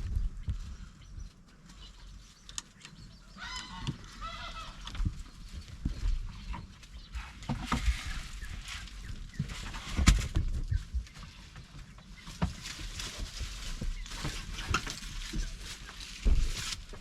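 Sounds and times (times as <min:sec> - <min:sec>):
low thumps and knocks: 0:00.0 - 0:01.4, 0:04.9 - 0:17.0
poultry honking calls: 0:03.3 - 0:05.0.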